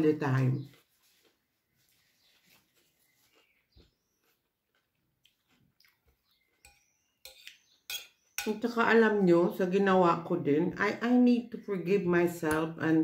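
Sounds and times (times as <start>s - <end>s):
faint chewing: 0.7s - 7.8s.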